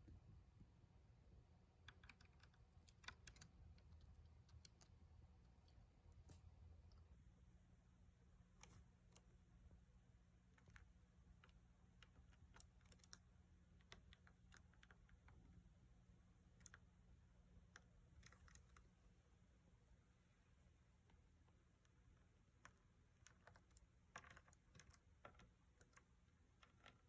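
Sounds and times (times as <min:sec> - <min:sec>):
low steady hum: 0:00.0 - 0:27.0
faint small clicks and taps: 0:01.8 - 0:07.2, 0:08.5 - 0:09.5, 0:10.4 - 0:15.7, 0:16.4 - 0:19.0, 0:20.9 - 0:27.0.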